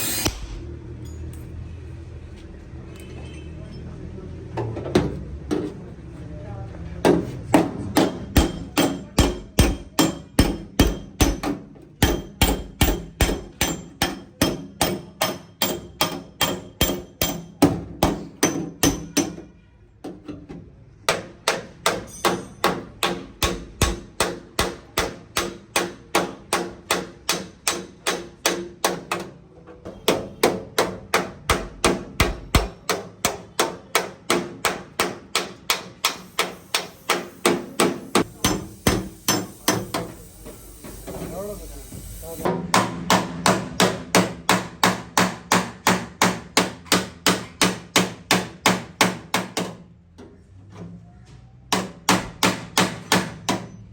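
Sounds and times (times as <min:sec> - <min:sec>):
hammer blows on sheet metal: 0:07.1 - 0:19.5, 0:29.9 - 0:49.8.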